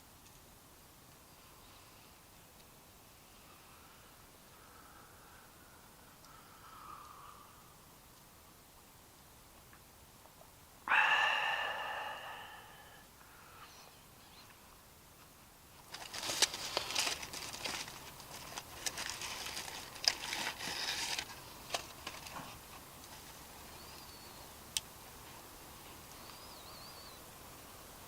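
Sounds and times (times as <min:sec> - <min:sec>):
crackling rustling noise: 0:15.2 - 0:26.5.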